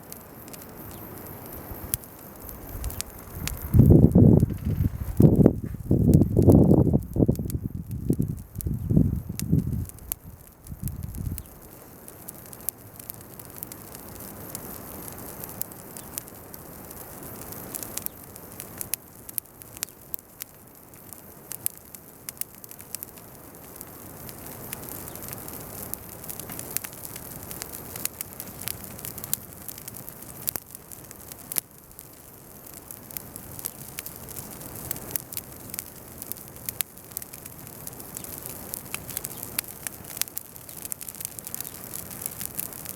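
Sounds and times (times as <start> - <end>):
fire crackling and popping: 0.0 - 42.9
hiss of flame: 0.0 - 42.9
low thumps: 2.7 - 7.1.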